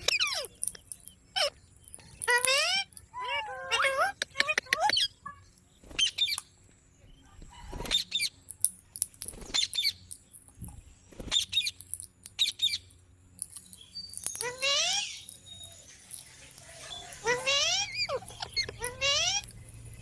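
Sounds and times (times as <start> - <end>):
parrot chirping: 0.0 - 6.4, 13.6 - 20.0.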